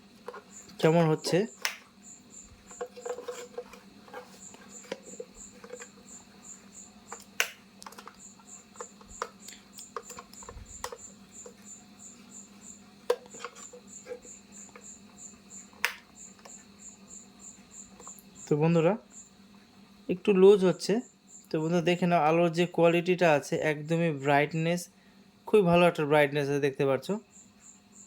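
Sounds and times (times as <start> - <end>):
cricket chirping: 0.0 - 28.0
faint steady hum: 0.0 - 28.0.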